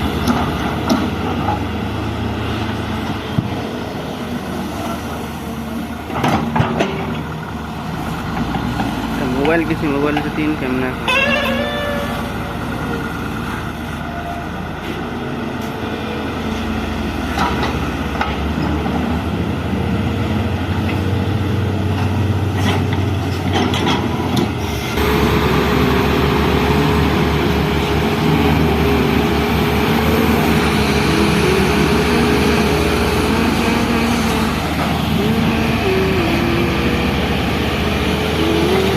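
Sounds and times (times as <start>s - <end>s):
excavator diesel engine running: 0.0s - 38.9s
steady whine: 25.0s - 38.9s.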